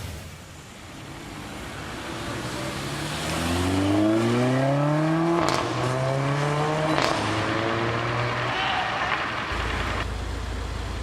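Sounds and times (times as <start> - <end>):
car engine accelerating: 1.7 - 11.0.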